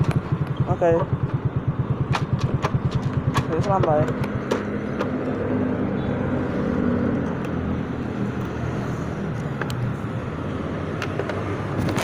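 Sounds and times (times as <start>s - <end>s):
motorcycle engine idling: 0.0s - 6.2s.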